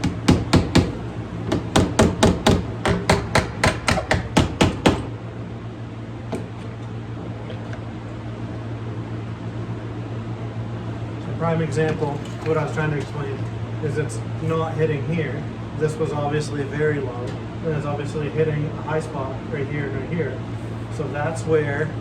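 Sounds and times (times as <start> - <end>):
hammer tapping on sheet metal: 0.0 - 5.1
steady low hum: 0.0 - 22.0.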